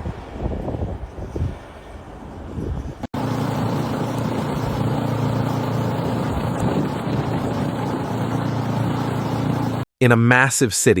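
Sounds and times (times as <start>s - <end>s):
wind buffeting microphone: 0.0s - 9.8s
vehicle engine and road noise: 3.1s - 9.9s.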